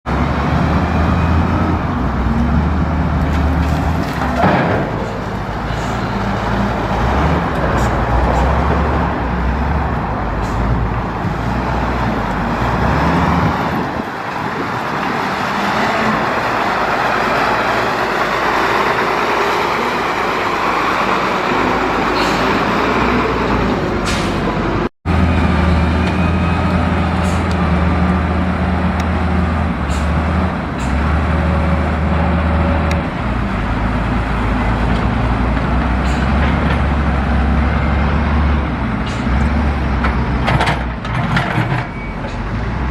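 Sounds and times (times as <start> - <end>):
traffic noise: 0.0 - 42.9
heavy diesel engines humming: 0.1 - 42.9.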